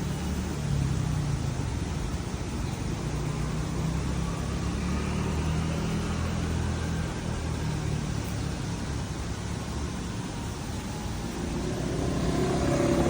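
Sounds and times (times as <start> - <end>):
passing vehicle rumble: 0.0 - 13.0
road noise: 0.0 - 13.0.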